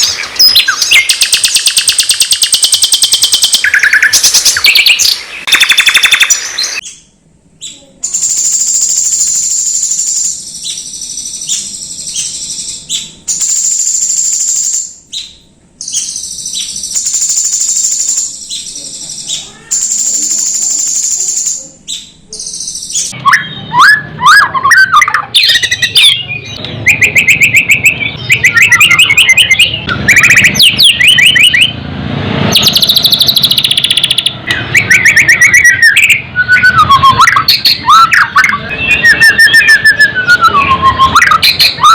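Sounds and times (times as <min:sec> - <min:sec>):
bird chirps and sweeping whistles: 0:00.0 - 0:07.0, 0:07.6 - 0:31.8, 0:32.5 - 0:41.9
high-pitched buzzing bird trills: 0:07.6 - 0:26.4.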